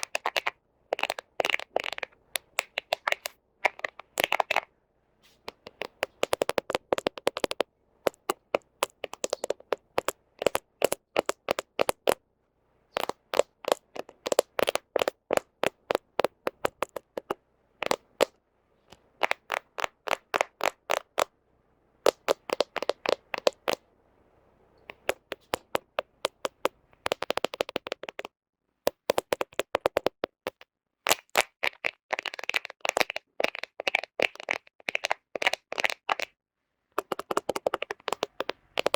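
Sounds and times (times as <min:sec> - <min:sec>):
fingernails tapping on phone: 0:00.0 - 0:04.7, 0:05.4 - 0:12.2, 0:12.9 - 0:21.3, 0:22.1 - 0:23.8, 0:24.8 - 0:28.3, 0:28.9 - 0:31.9, 0:37.0 - 0:38.9.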